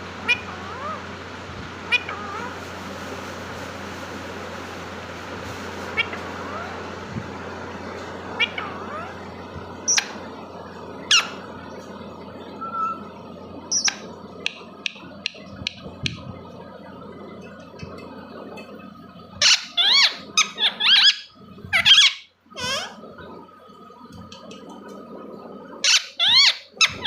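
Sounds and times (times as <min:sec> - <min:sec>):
parrot squawking: 0:00.2 - 0:01.0, 0:01.9 - 0:02.5, 0:06.0 - 0:06.8, 0:08.4 - 0:09.2, 0:11.1 - 0:11.4, 0:12.6 - 0:13.1, 0:19.4 - 0:23.0, 0:25.8 - 0:27.0
parrot chirps and clicks: 0:13.7 - 0:16.2.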